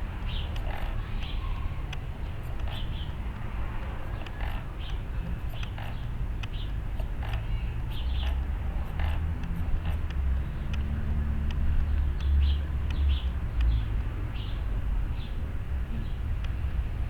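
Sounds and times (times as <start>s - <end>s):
birds chirping: 0.2s - 3.3s, 4.0s - 10.8s.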